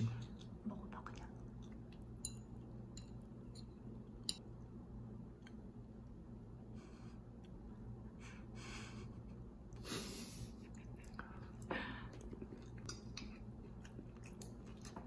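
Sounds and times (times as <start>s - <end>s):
low room hum: 0.0s - 15.0s
person chewing meat: 10.7s - 15.0s.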